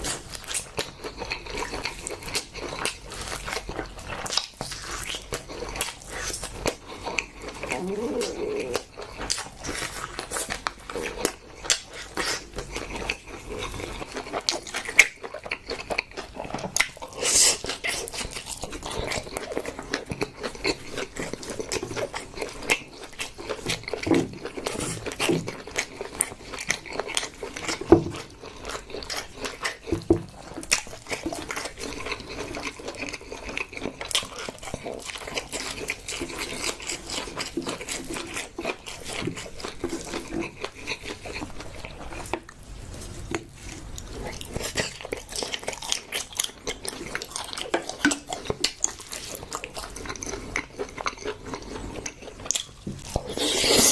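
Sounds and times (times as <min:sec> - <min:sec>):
person biting and chewing: 0:00.0 - 0:53.9.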